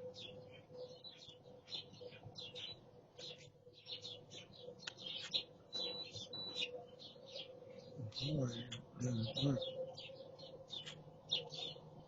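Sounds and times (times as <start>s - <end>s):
faint steady hum: 0.0s - 12.0s
small birds chirping: 0.0s - 12.0s
high steady beep: 5.7s - 6.7s.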